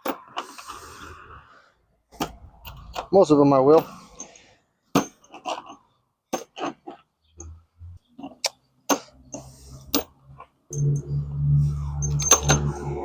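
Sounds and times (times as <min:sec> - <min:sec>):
metal parts clinking: 0:09.3 - 0:10.1, 0:10.7 - 0:11.1, 0:11.8 - 0:13.0.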